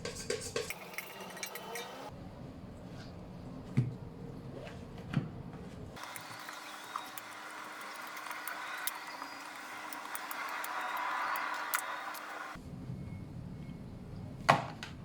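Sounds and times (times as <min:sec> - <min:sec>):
stand mixer motor hum with ticks: 0:06.0 - 0:12.6.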